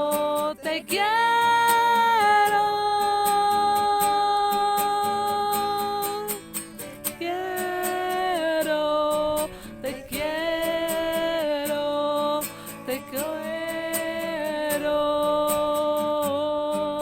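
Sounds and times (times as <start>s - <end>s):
person singing long notes: 0.0s - 6.4s, 7.1s - 17.0s
acoustic guitar strumming: 0.0s - 17.0s.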